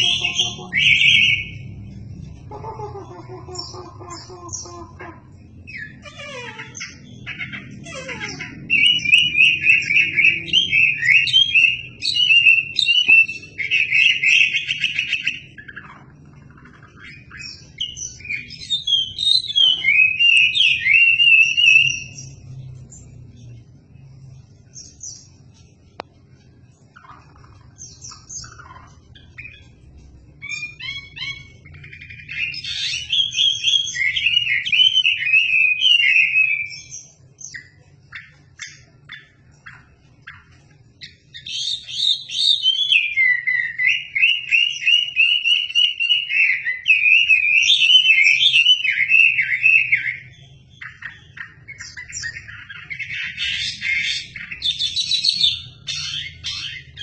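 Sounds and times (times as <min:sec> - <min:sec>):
songbird whistled warbling: 0:05.7 - 0:16.0.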